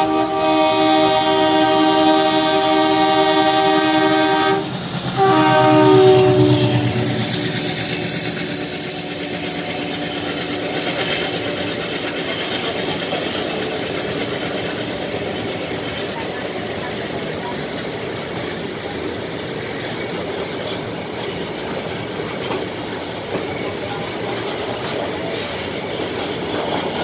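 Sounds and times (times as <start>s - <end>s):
train horn blasts: 0.0s - 8.0s
freight train rumbling past: 0.0s - 27.0s.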